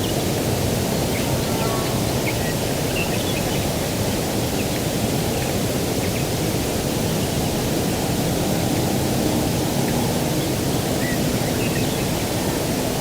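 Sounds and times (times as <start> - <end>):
breeze rushing over open ground: 0.0 - 13.0.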